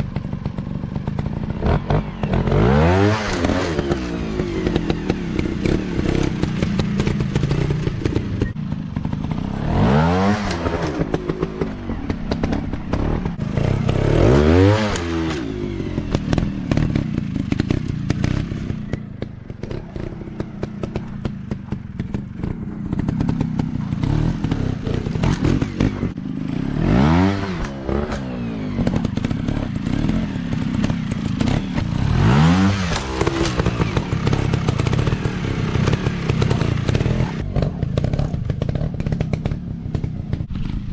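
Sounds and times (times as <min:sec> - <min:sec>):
dirt bike engines revving: 0:00.0 - 0:40.9
clatter and knocks: 0:15.0 - 0:26.2.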